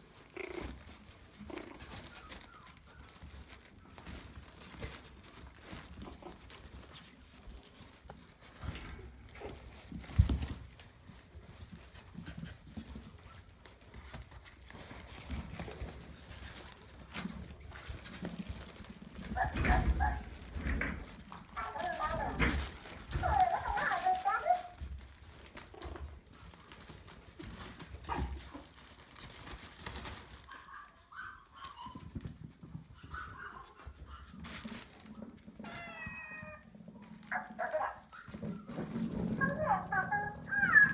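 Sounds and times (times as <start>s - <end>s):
puppies squeaking and whimpering: 0.2s - 6.9s, 17.8s - 24.8s, 29.8s - 36.7s, 38.1s - 40.9s.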